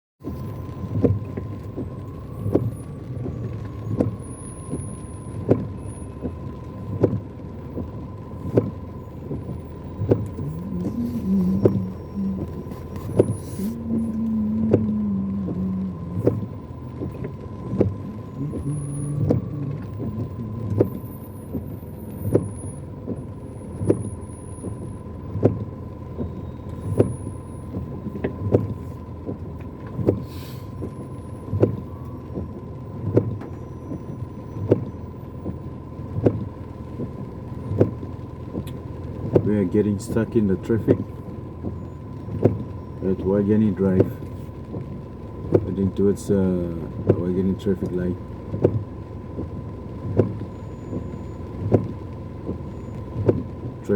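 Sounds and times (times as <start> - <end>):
engine and rain hum: 0.2 - 53.9
windscreen wipers knocking: 0.2 - 53.9
thin steady whine: 9.0 - 25.0.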